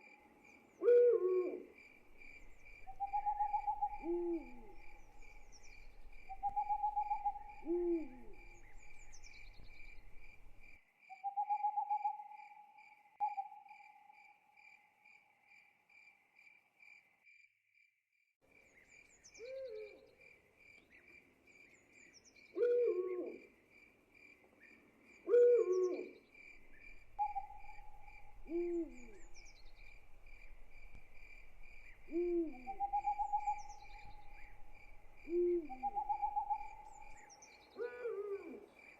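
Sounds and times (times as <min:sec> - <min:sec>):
crickets chirping: 0:00.0 - 0:17.4, 0:22.9 - 0:38.9
owl hooting: 0:00.8 - 0:10.6, 0:11.2 - 0:12.6, 0:19.4 - 0:20.1, 0:22.6 - 0:23.4, 0:25.3 - 0:38.7.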